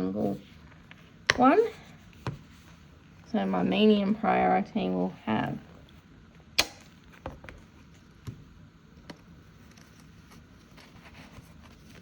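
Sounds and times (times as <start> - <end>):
sharp click: 6.6 - 6.9
paper envelopes rustling: 9.5 - 12.0.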